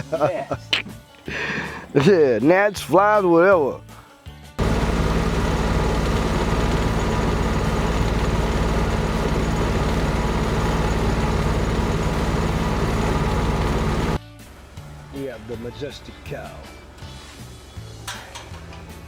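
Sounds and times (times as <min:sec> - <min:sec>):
engine running with low rumble: 0:04.6 - 0:19.0.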